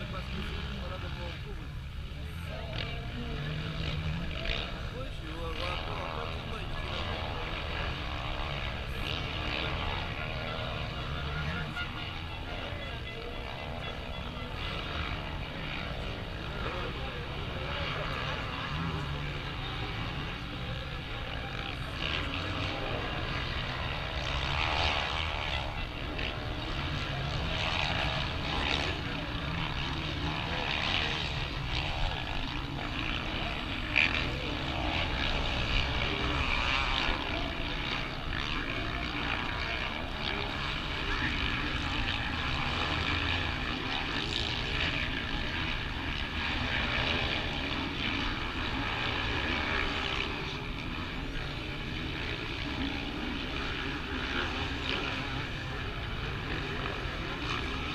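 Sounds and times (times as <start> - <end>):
motocross bike engines revving: 0.0 - 57.9.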